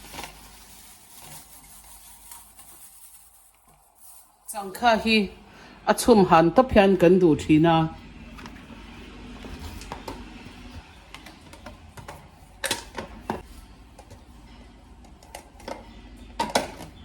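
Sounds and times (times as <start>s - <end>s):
handling vegetables: 0.0s - 5.3s.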